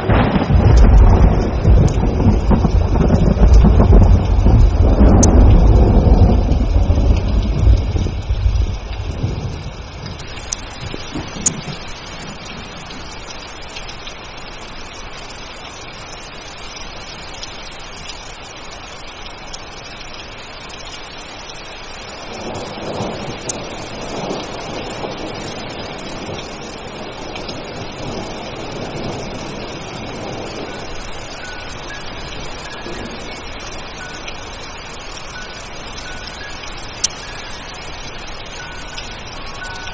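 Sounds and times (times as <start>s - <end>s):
distant thunder rumbling: 0.0s - 13.2s, 22.3s - 34.3s
steady rain hissing: 0.0s - 39.9s.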